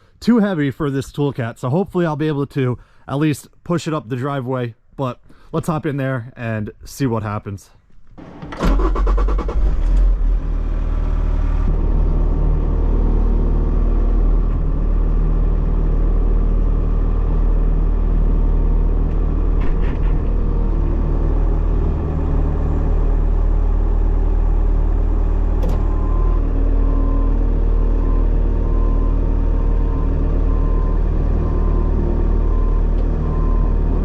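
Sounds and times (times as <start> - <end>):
diesel engine running: 8.7 - 34.0.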